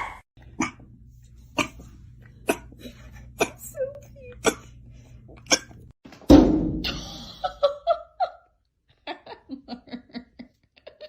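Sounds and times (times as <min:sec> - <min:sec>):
loud thump: 0:06.2 - 0:07.0
person laughing: 0:06.8 - 0:11.0.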